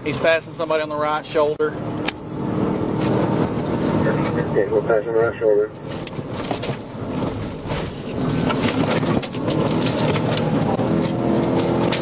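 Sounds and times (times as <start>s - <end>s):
road and engine rumble: 0.0s - 12.0s
constant crackling: 3.0s - 12.0s.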